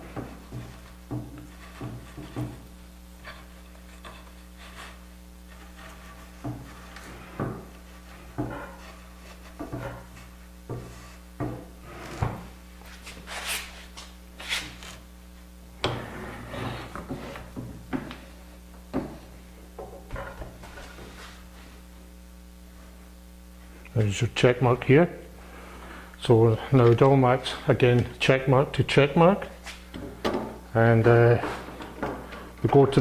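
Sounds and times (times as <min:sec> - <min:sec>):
wood scraping rubs: 0:00.0 - 0:15.1, 0:15.8 - 0:17.6.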